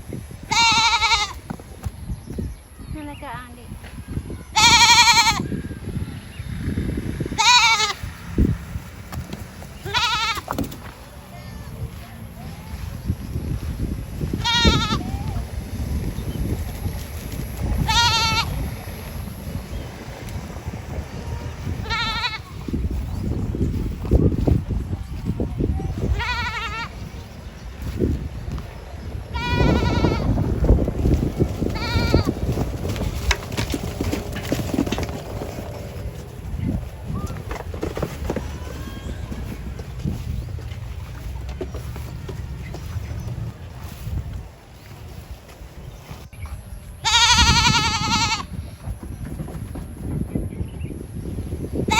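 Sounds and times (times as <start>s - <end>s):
goat bleating: 0.5s - 1.4s, 4.5s - 5.5s, 7.3s - 8.1s, 9.8s - 10.5s, 14.4s - 15.2s, 17.8s - 18.5s, 21.8s - 22.6s, 26.0s - 27.0s, 29.3s - 30.3s, 31.7s - 32.3s, 47.0s - 48.5s.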